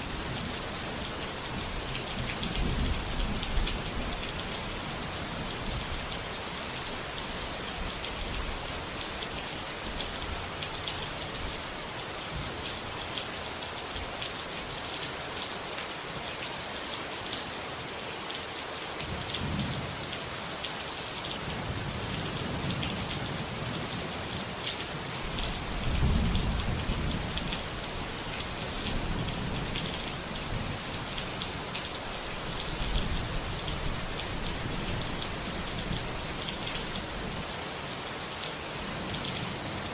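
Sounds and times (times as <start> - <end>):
rain pattering: 0.0 - 17.5, 18.2 - 39.9.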